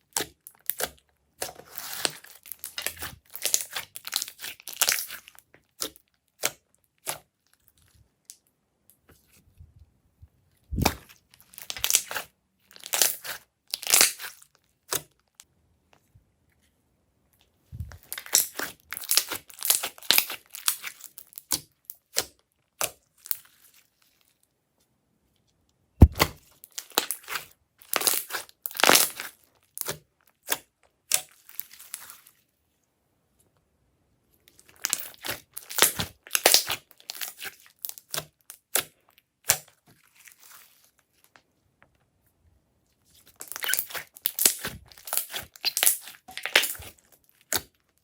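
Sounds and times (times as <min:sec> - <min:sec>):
slime crackling and popping: 0:00.1 - 0:07.2, 0:10.8 - 0:15.2, 0:18.0 - 0:23.4, 0:26.0 - 0:32.0, 0:34.7 - 0:40.4, 0:43.3 - 0:47.8.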